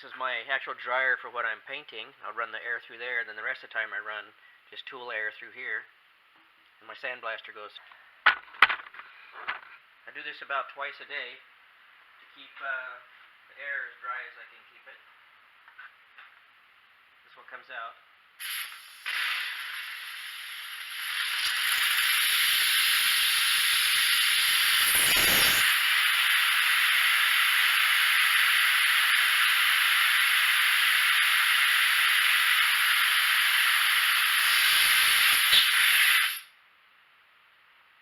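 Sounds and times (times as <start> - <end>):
compressed air hissing: 18.4 - 36.6.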